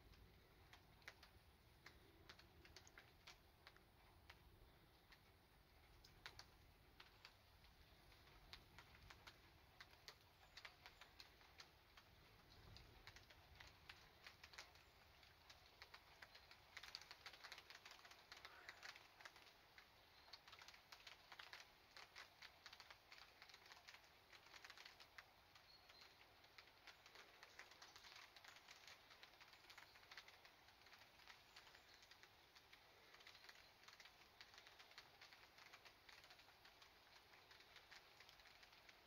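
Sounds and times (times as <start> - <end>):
raindrops ticking on surfaces: 0.0 - 39.0.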